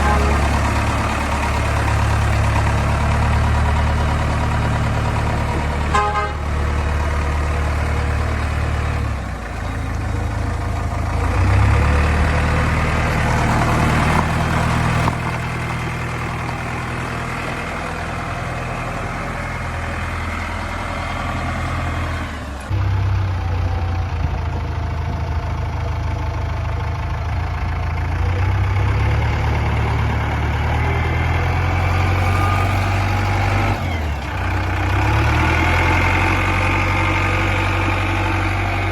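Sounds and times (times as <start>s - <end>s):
vehicle horn toot: 0.0s - 0.6s, 5.8s - 6.6s
heavy diesel engine running: 0.0s - 38.9s.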